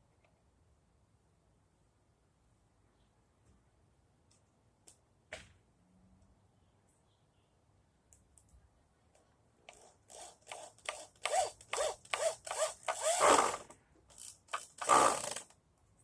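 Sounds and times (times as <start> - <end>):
hand saw cutting wood: 9.7 - 15.5.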